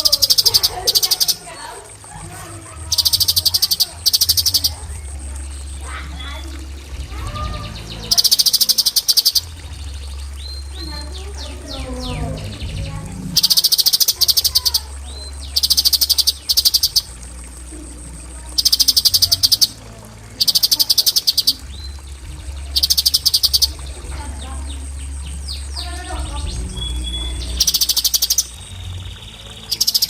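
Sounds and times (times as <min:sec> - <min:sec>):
bird rapid repeated high notes: 0:00.0 - 0:02.0, 0:02.8 - 0:19.8, 0:20.4 - 0:25.9, 0:26.7 - 0:30.0.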